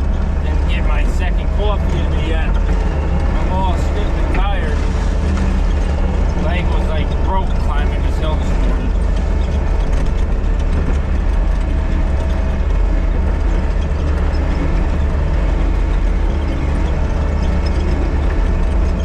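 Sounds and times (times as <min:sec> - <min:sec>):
diesel engine rumbling: 0:00.0 - 0:19.0.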